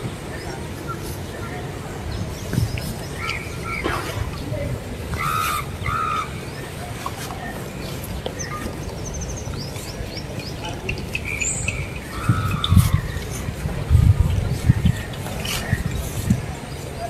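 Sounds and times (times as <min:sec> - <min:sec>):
birds calling: 0:00.0 - 0:17.0
steady low rumble: 0:08.9 - 0:17.0.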